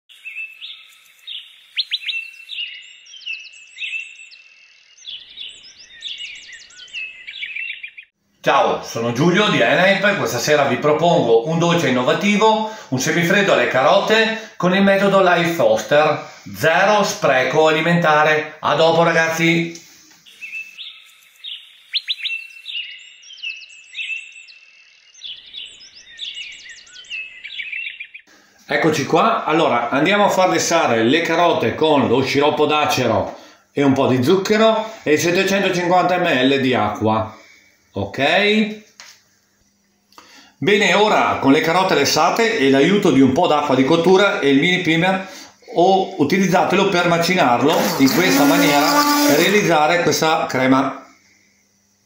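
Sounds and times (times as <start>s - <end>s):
songbirds singing: 0.1s - 17.1s, 18.5s - 28.9s
birds chirping and trilling: 0.1s - 38.6s, 47.3s - 49.9s.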